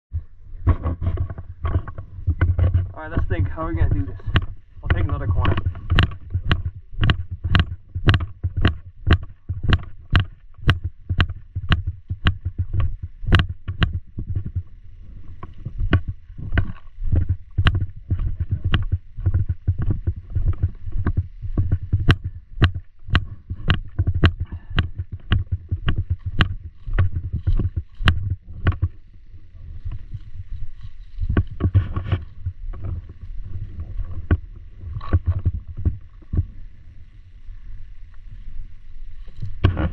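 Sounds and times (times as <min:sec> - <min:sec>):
footsteps: 0:00.2 - 0:36.6, 0:38.1 - 0:39.9
gear knocking: 0:00.7 - 0:29.1.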